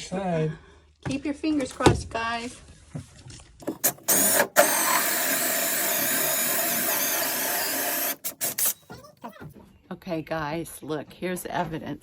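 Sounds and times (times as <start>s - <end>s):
power drill boring through floor: 3.6s - 8.8s.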